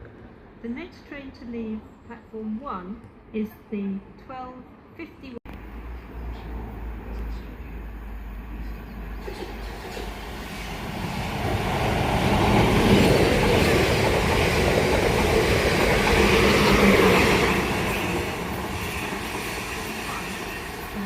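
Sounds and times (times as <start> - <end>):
train running past platform: 5.5 - 21.0.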